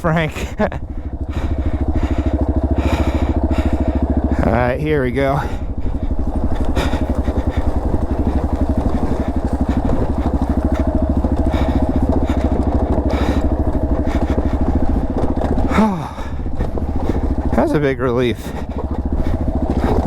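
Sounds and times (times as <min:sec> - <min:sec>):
dirt bike engine chugging: 0:00.0 - 0:20.0.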